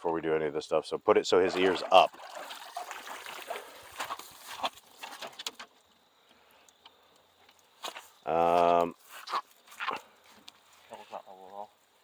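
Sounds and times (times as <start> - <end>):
water splashing: 1.4 - 5.4.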